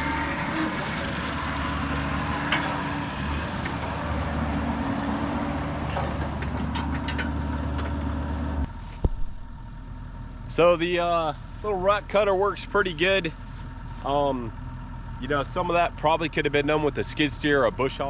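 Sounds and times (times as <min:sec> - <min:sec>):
brush cutter shredding brush: 0:00.0 - 0:02.8, 0:08.6 - 0:09.8
excavator engine and hydraulics: 0:00.0 - 0:18.0.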